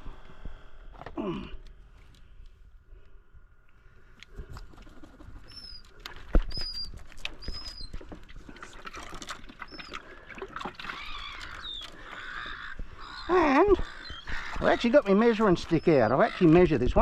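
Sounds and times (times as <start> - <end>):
birds whistling chirps: 5.4 - 8.1, 9.6 - 10.2, 10.8 - 17.0.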